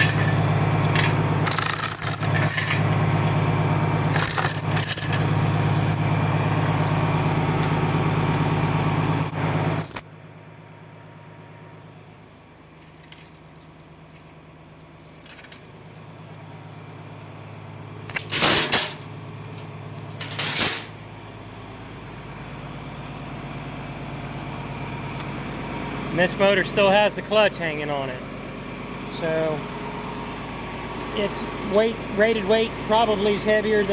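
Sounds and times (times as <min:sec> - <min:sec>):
metallic clatters: 0:00.0 - 0:03.0, 0:12.8 - 0:19.1, 0:19.9 - 0:21.0.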